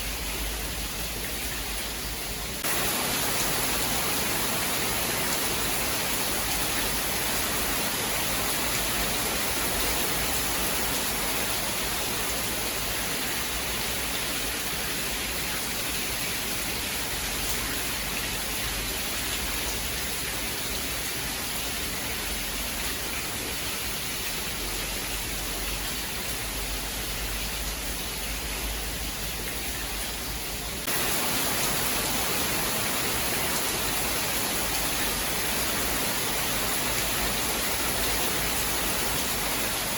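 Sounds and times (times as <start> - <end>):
heavy rain hissing: 0.0 - 19.9, 22.4 - 39.9.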